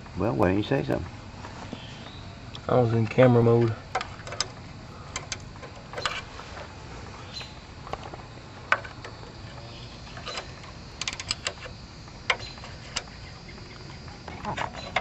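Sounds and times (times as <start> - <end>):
hand tools clicking on bolts: 3.6 - 6.3, 10.2 - 11.7.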